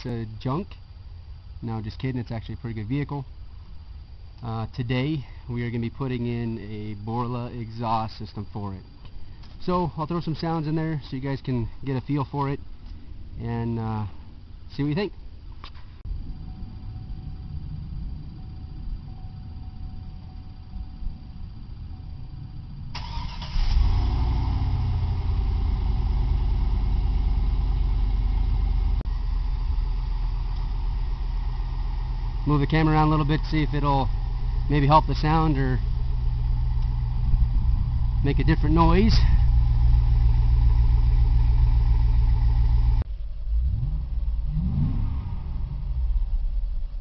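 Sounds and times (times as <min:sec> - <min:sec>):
car engine starting and idling: 0:15.6 - 0:47.0.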